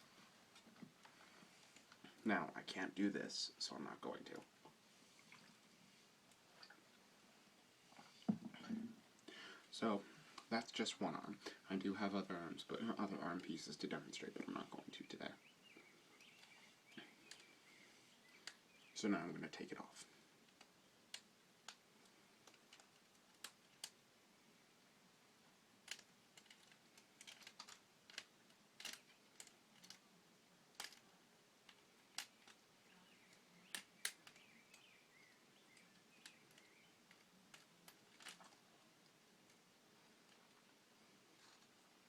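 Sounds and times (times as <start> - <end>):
plastic pieces clicking: 20.5 - 24.0, 25.8 - 30.0, 30.7 - 31.0, 31.6 - 32.7, 35.8 - 38.6.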